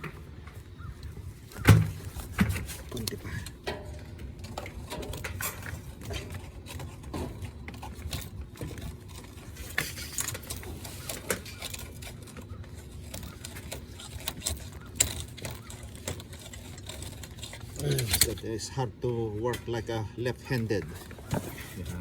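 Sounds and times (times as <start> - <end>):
hand tool scraping copper pipe: 1.5 - 18.6.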